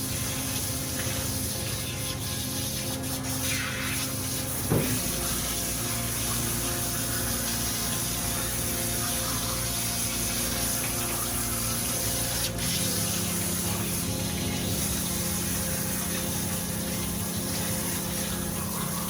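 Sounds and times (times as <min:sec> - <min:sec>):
pump-like hum: 0:00.0 - 0:19.0
water running into bath: 0:00.0 - 0:19.0
short knock: 0:04.7 - 0:05.2.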